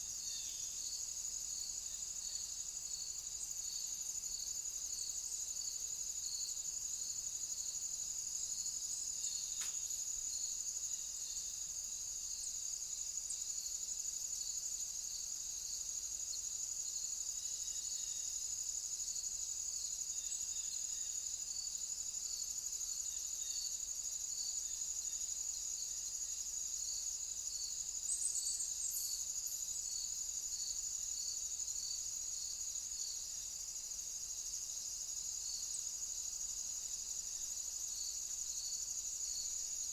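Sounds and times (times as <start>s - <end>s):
insect pulsing call: 0.0s - 4.1s, 22.6s - 33.7s.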